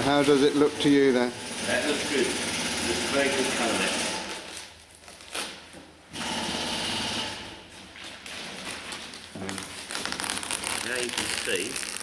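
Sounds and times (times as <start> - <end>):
masking tape peeling: 4.2 - 5.8, 8.1 - 12.0.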